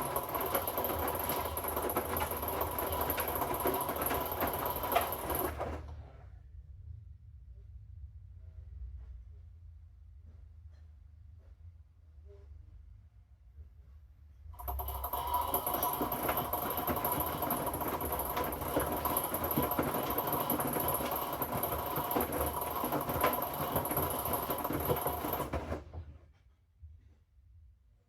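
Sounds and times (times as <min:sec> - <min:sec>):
washing machine motor whine: 0:00.0 - 0:05.9, 0:14.6 - 0:26.2
laundry tumbling and clicking: 0:00.0 - 0:06.0, 0:14.6 - 0:26.3.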